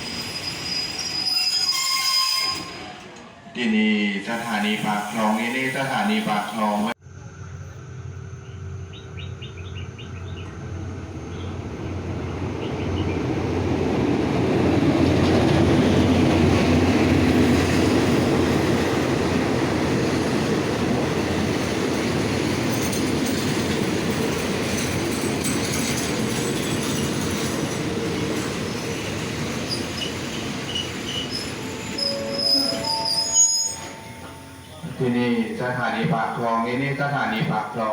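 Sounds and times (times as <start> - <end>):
train wheels rumbling on rails: 7.4 - 35.0.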